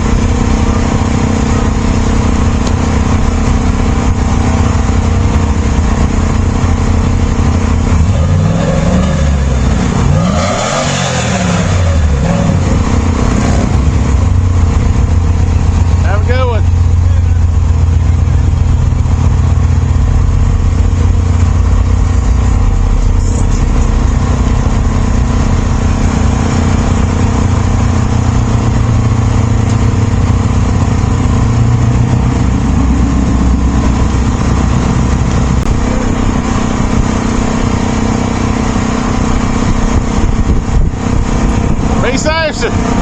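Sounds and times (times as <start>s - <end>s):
car engines rumbling: 0.0s - 43.0s.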